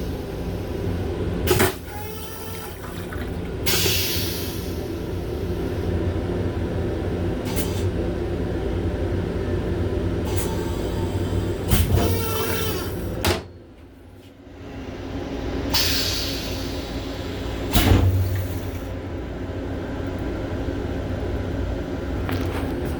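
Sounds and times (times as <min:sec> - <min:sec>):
railcar running rumble: 0:00.0 - 0:02.0, 0:02.8 - 0:22.9
hiss: 0:15.7 - 0:17.9.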